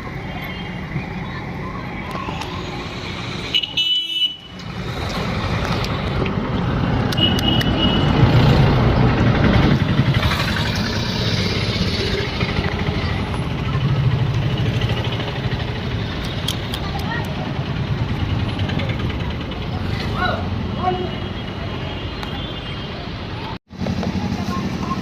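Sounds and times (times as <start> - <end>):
traffic engines running: 0.0 - 25.0
vehicle passing close: 4.6 - 20.8.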